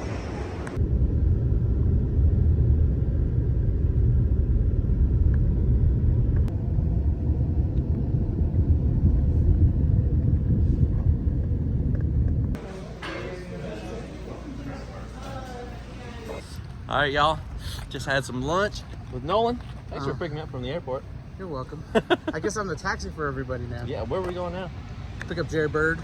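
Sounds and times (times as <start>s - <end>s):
vehicle interior rumble: 0.0s - 12.6s.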